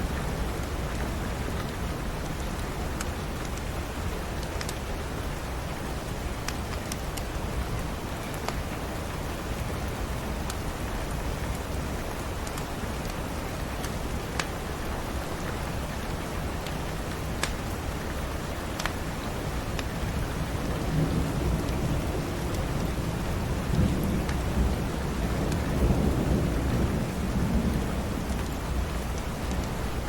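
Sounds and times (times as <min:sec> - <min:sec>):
steady rain: 0:00.0 - 0:30.0
wood fire crackling: 0:00.4 - 0:25.9, 0:27.0 - 0:30.0
rumble of thunder: 0:20.1 - 0:30.0.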